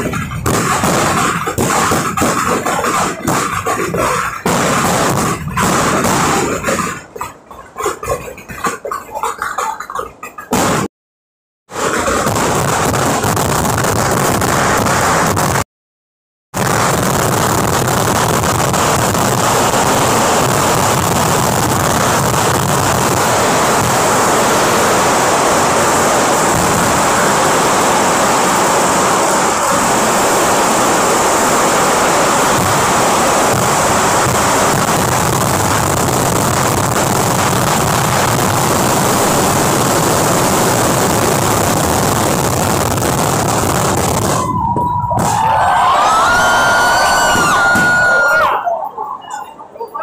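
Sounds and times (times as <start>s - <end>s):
fireworks crackling and bursting: 0.0s - 10.9s, 11.7s - 15.7s, 16.6s - 48.8s.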